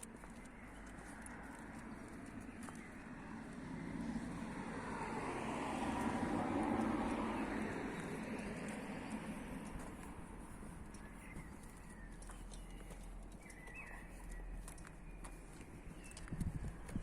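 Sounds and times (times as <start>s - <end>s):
car passing by: 1.0s - 10.4s.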